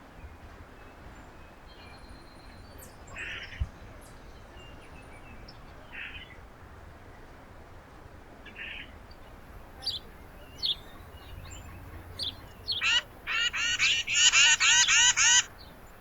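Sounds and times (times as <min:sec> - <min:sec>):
bird rough chirp: 0:12.2 - 0:15.6.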